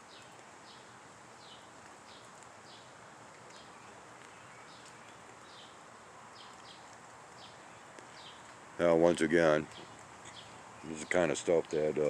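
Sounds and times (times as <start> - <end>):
small bird chip notes: 0.0 - 8.6
outdoor hiss: 0.0 - 12.0.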